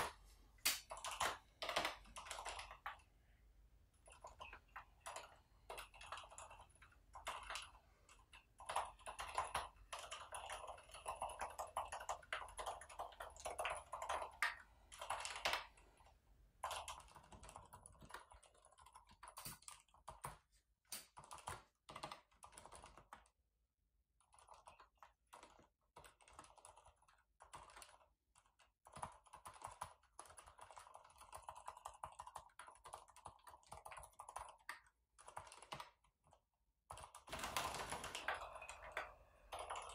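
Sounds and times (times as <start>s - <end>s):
soft damped keyboard typing: 0.8s - 23.4s, 24.2s - 39.9s.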